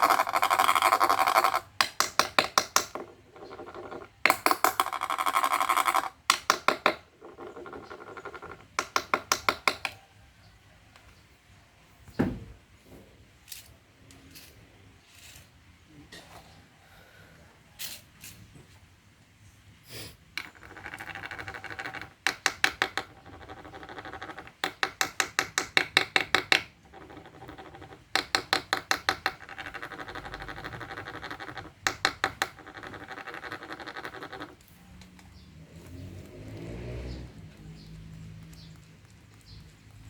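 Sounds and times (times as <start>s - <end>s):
rapid squeaky ticks: 37.2s - 40.0s.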